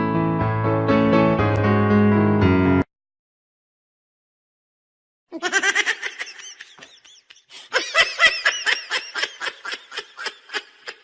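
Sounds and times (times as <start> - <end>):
high-pitched laughter: 5.3 - 11.0.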